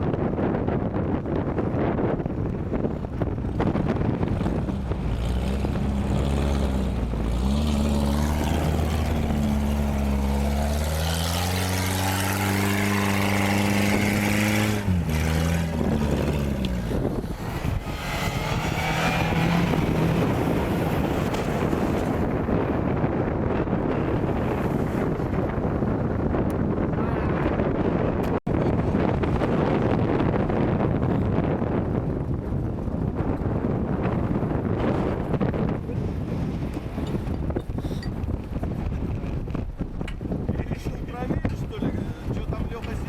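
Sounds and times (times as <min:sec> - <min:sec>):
wind buffeting microphone: 0:00.0 - 0:43.0
off-road vehicle engine revving: 0:03.4 - 0:28.4.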